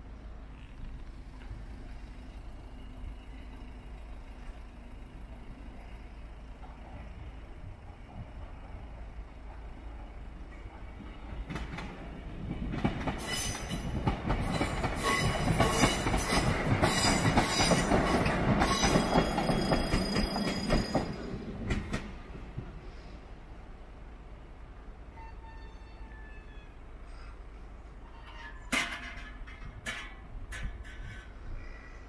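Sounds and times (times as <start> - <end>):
train wheels clattering over rail joints: 4.5 - 22.6, 28.0 - 31.8
high squeal from train wheels: 13.1 - 21.5, 25.0 - 28.8.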